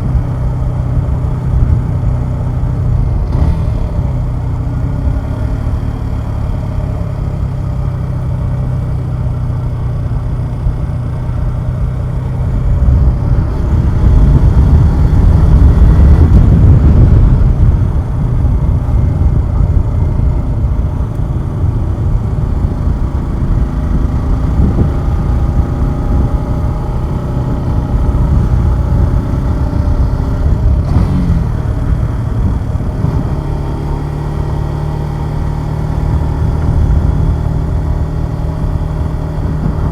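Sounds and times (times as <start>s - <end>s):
motorcycle engine running: 0.0s - 39.9s
wind rush: 12.4s - 34.2s, 35.9s - 39.9s.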